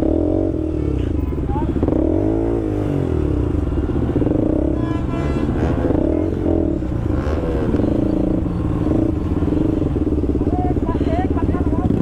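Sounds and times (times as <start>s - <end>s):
motorcycle engines running: 0.0s - 12.0s.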